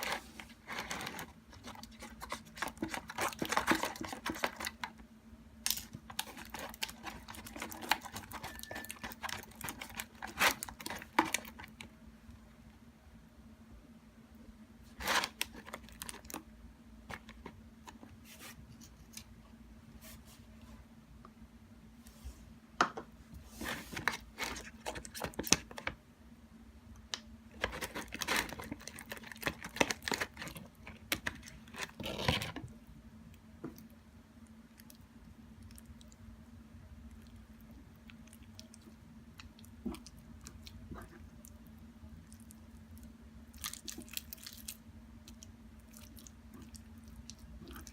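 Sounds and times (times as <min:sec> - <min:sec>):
faint steady hum: 0:00.0 - 0:47.9
slime crinkling and sticky tearing: 0:42.3 - 0:47.9.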